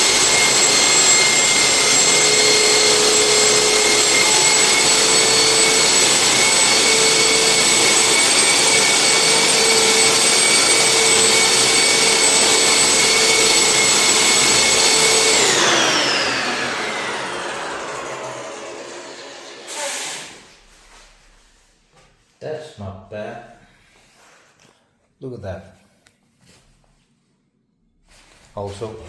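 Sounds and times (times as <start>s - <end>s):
motor spinning down: 0.0s - 20.5s
floor sanding machine whining: 0.0s - 22.0s.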